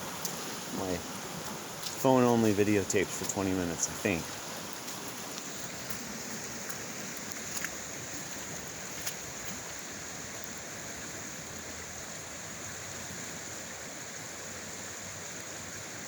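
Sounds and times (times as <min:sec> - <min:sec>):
creek water running: 0:00.0 - 0:16.0
faint ticks: 0:04.7 - 0:10.6.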